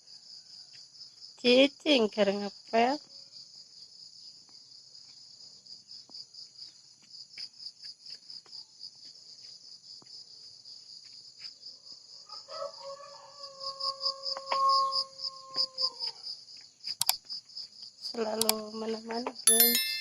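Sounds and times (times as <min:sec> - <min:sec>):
crickets chirping: 0:00.0 - 0:19.9.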